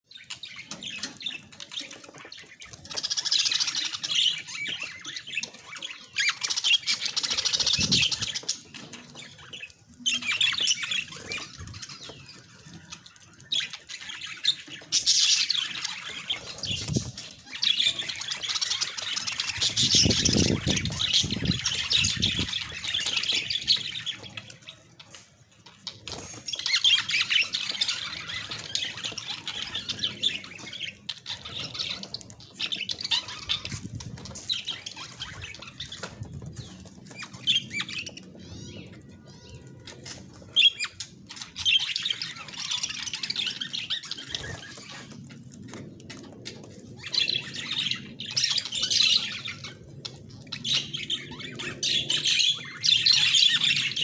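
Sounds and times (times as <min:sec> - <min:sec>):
budgerigars chattering and squawking: 0:00.1 - 0:45.5, 0:47.0 - 0:54.0.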